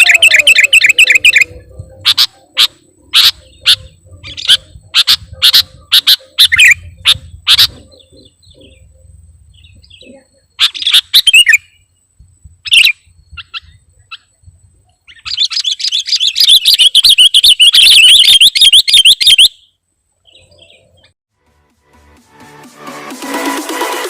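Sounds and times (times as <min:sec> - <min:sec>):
rapid bird chattering: 0:00.0 - 0:11.8, 0:12.6 - 0:14.4, 0:15.0 - 0:19.7
bird calling: 0:00.0 - 0:21.2.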